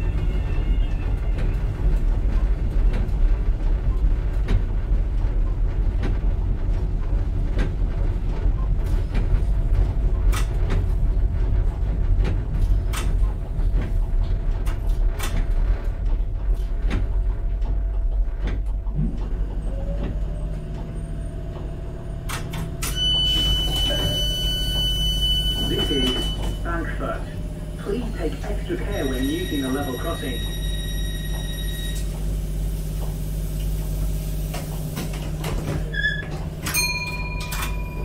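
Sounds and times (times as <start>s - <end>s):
train slowing whine: 0.0s - 5.4s, 19.1s - 38.0s
train wheels clicking over rail joints: 1.3s - 25.0s
high electronic door warning tone: 22.5s - 27.2s, 27.9s - 32.2s.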